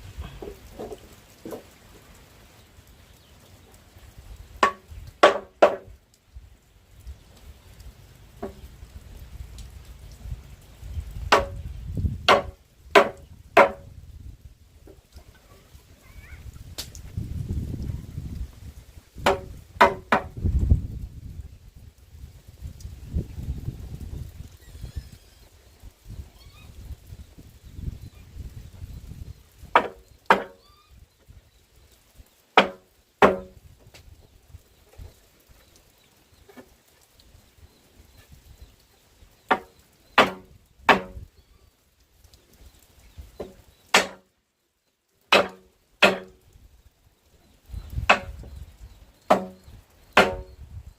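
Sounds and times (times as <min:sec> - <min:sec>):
tool striking wood: 0:04.6 - 0:05.9, 0:11.3 - 0:11.6, 0:12.3 - 0:13.8, 0:19.2 - 0:20.3, 0:29.8 - 0:30.6, 0:32.6 - 0:33.5, 0:39.5 - 0:41.2, 0:43.4 - 0:44.2, 0:45.3 - 0:46.4, 0:48.1 - 0:48.4, 0:49.3 - 0:49.6, 0:50.2 - 0:50.5.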